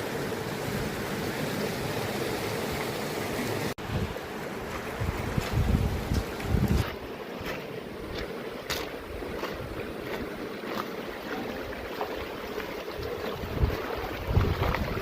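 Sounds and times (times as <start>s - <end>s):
wind buffeting microphone: 3.8s - 7.0s, 12.9s - 15.0s
footsteps on a trail: 4.6s - 15.0s.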